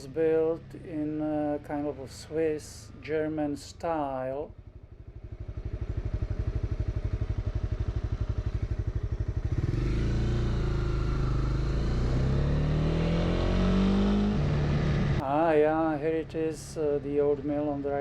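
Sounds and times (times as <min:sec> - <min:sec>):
motorcycle engine revving: 0:04.4 - 0:15.3.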